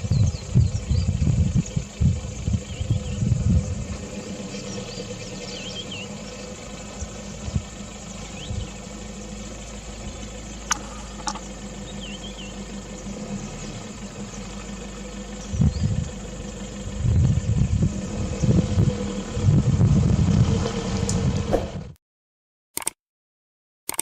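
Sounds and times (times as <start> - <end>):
vehicle engine idling: 0.0 - 21.9
high bird chirps: 4.4 - 14.6
sharp clicks: 10.6 - 11.5, 22.8 - 23.0.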